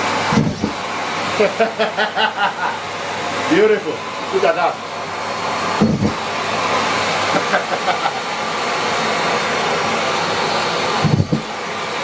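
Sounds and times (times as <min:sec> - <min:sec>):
vacuum cleaner suction rushing: 0:00.0 - 0:12.0.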